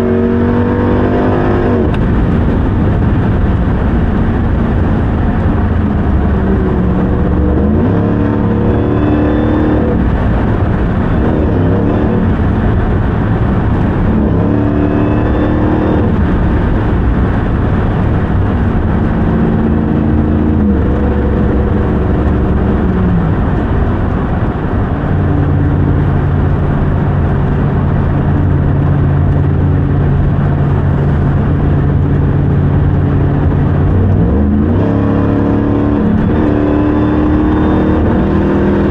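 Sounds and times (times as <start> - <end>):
truck engine accelerating: 0.0 - 38.9.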